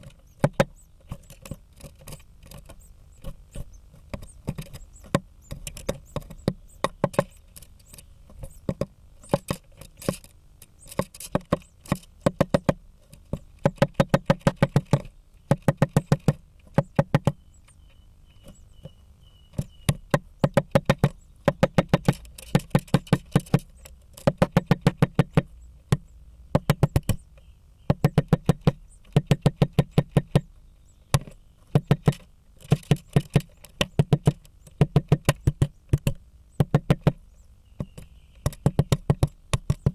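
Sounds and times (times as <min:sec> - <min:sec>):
woodpecker hammering on wood: 0:00.0 - 0:39.9.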